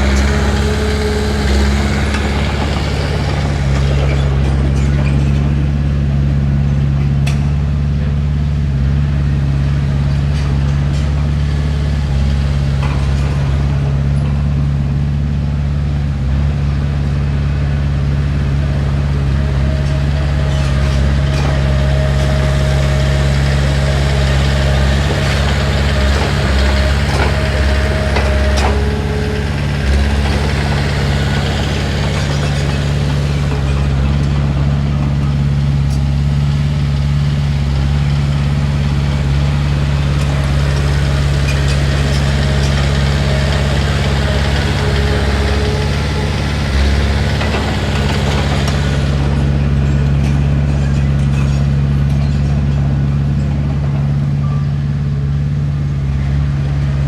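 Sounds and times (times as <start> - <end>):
heavy diesel engine running: 0.0 - 57.0
low short tone: 54.2 - 55.2.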